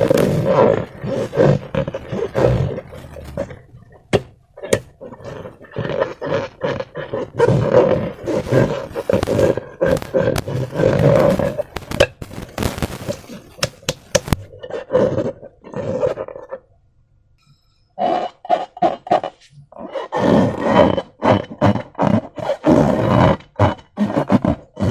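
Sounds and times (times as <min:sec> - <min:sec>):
sharp clicks and pops: 0:00.0 - 0:14.5
rubber balloon squeaking: 0:00.0 - 0:14.6
wet slime squelching: 0:00.0 - 0:14.6.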